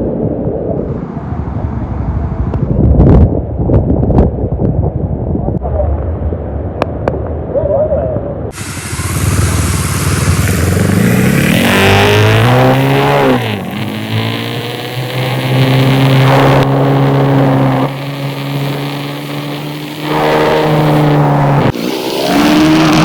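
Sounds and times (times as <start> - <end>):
motorcycle engine accelerating: 8.5 - 23.0.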